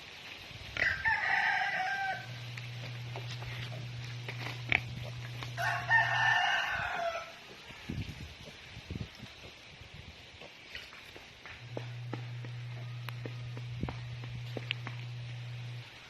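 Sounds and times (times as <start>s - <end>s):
rooster crowing: 0.8s - 2.9s, 5.4s - 7.6s.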